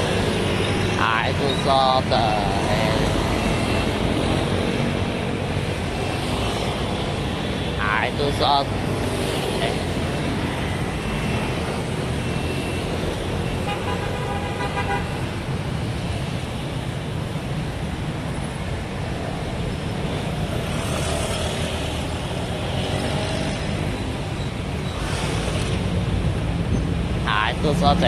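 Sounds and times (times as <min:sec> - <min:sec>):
city road traffic: 0:00.0 - 0:28.0
vehicle horn: 0:13.6 - 0:15.2.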